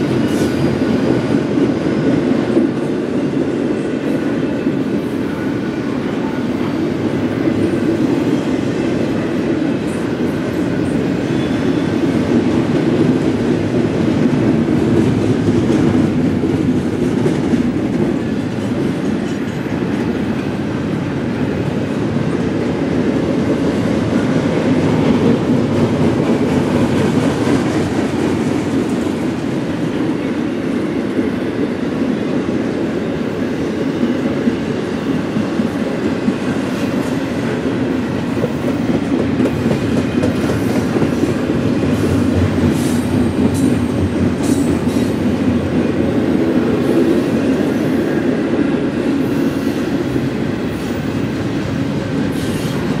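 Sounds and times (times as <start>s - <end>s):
steel wheels rolling on rail: 0.0s - 53.0s.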